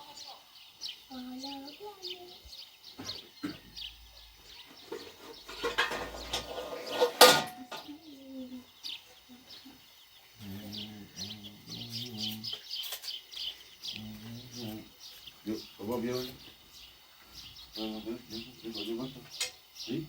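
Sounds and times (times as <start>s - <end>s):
small birds chirping: 0.0s - 20.0s
clattering noise: 4.7s - 7.9s.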